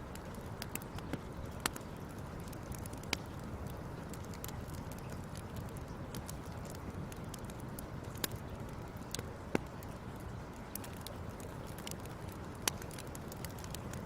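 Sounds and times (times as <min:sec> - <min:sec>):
fire crackling: 0:00.0 - 0:14.0
fire pops: 0:00.0 - 0:14.0.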